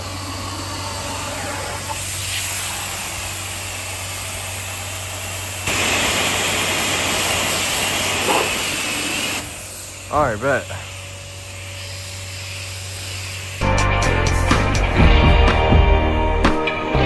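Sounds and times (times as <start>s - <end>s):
spray wand hissing: 1.0s - 13.6s.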